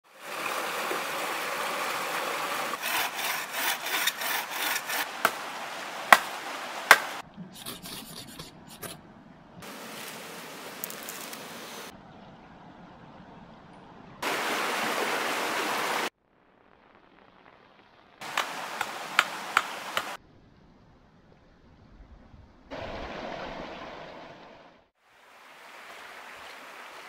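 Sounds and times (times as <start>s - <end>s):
scattered scrapes: 2.8s - 5.1s, 7.6s - 9.0s
hand saw cutting wood: 2.8s - 5.4s
steady hiss: 9.6s - 11.9s.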